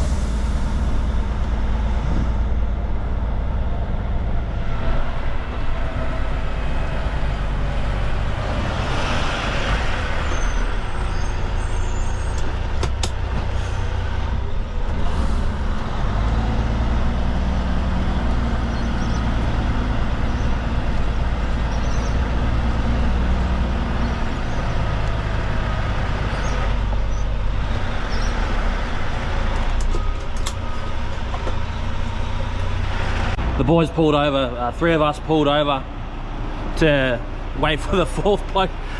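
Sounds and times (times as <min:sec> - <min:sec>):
heavy truck engine rumbling: 0:00.0 - 0:38.9.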